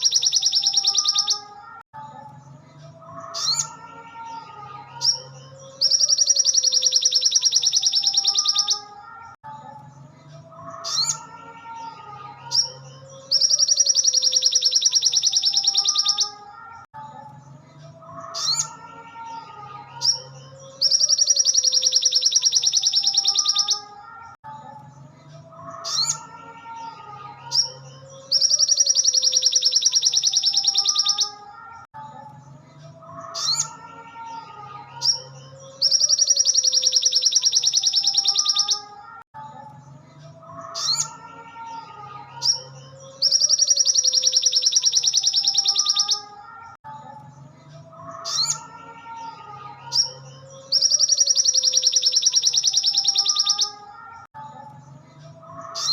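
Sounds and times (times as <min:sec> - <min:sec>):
bird whistled warbling: 0:00.0 - 0:01.5.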